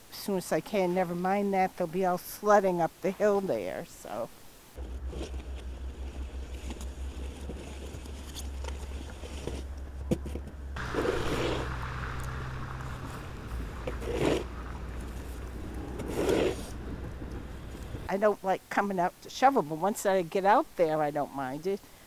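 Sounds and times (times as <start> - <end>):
loud scraping: 10.8 - 18.1
small engine running: 10.8 - 18.1.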